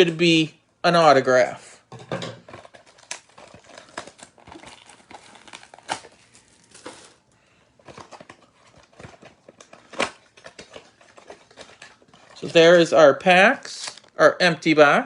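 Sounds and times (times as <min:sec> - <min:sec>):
foil packs rustling and crinkling: 0:02.4 - 0:12.9.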